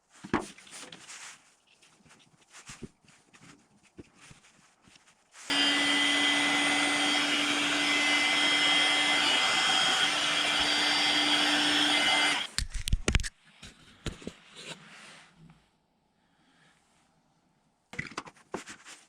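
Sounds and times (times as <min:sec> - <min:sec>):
electric motor machine running: 0:05.5 - 0:12.5.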